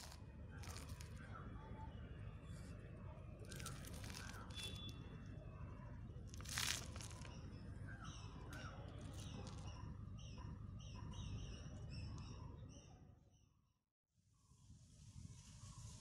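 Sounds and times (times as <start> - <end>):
rustling: 6.3 - 7.3.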